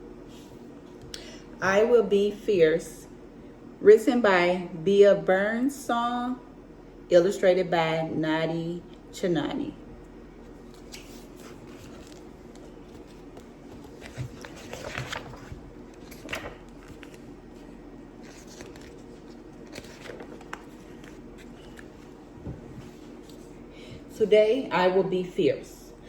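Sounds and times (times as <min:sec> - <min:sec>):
low room hum: 0:00.0 - 0:26.0
book pages rustling: 0:10.4 - 0:23.5.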